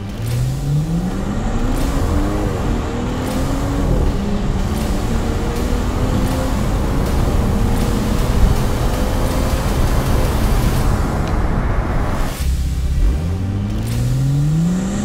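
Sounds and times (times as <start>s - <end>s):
car engine accelerating through gears: 0.0s - 15.0s.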